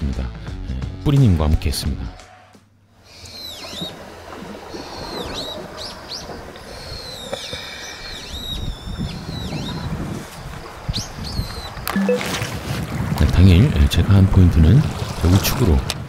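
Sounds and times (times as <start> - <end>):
birds whistling calls: 3.0 - 12.3.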